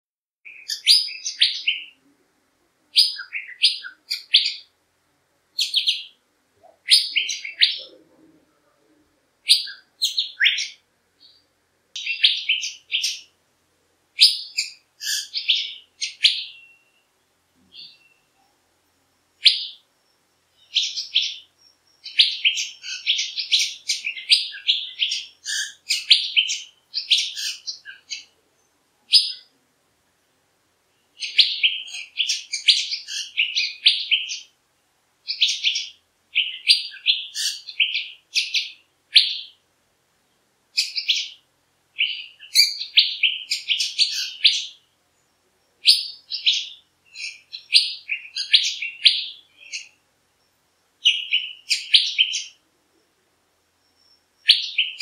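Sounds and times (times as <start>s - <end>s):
birds chirping: 0.4s - 2.3s, 2.9s - 4.8s, 5.4s - 13.4s, 14.1s - 29.6s, 30.8s - 34.6s, 35.2s - 55.0s.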